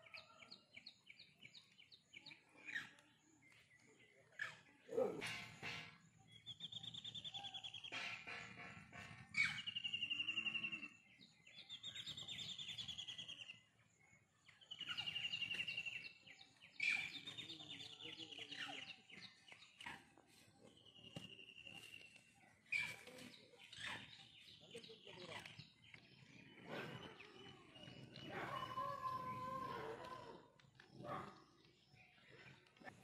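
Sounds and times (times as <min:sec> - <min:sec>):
bird singing rapid trills: 0:06.2 - 0:08.3, 0:09.4 - 0:19.8.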